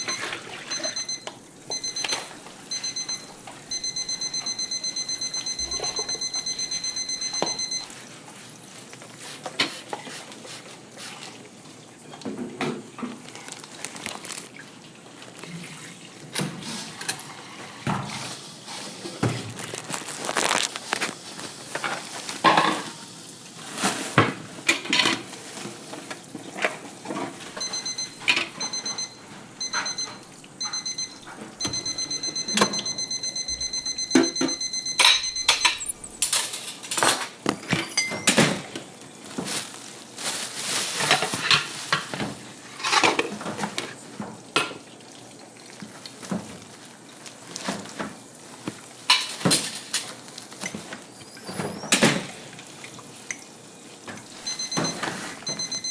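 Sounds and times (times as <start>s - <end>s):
electronic beeper: 0.0s - 7.9s, 27.6s - 36.3s, 54.5s - 55.9s.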